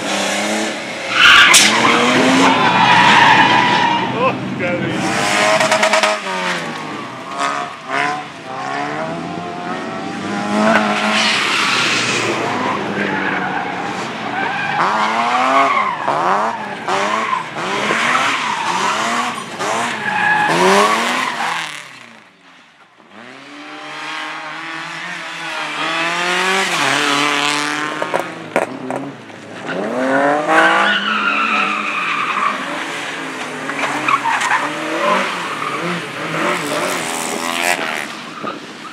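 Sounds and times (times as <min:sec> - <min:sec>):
car engines revving: 0:00.0 - 0:38.9.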